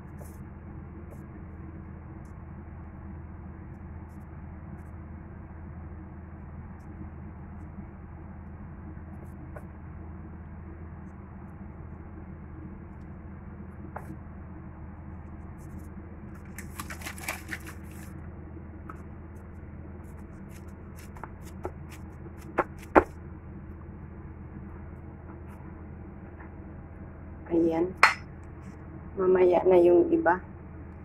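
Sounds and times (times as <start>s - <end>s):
low hum: 0.0s - 31.0s
crinkly rustle: 15.6s - 18.2s.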